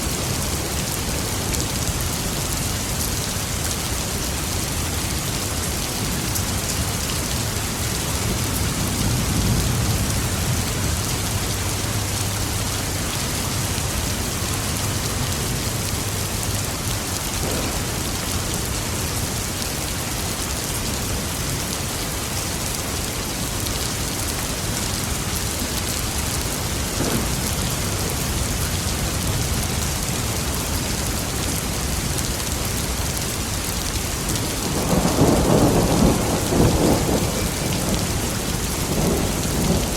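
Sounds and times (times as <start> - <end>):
steady rain falling: 0.0 - 39.9
low thunder rumble: 17.3 - 19.6, 26.6 - 30.8, 34.4 - 39.9.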